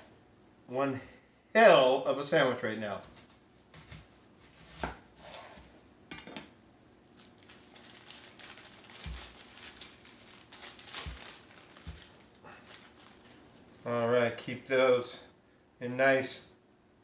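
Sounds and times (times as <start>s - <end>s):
crinkling: 7.0s - 14.0s.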